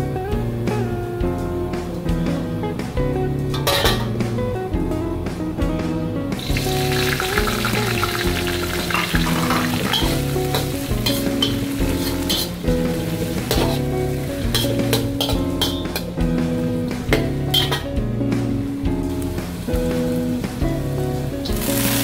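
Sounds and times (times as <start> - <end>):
background music: 0.0 - 22.0
metal spatula scraping a wok: 3.5 - 4.2, 9.0 - 16.1, 17.5 - 17.9
vegetables sizzling in hot oil: 6.4 - 22.0.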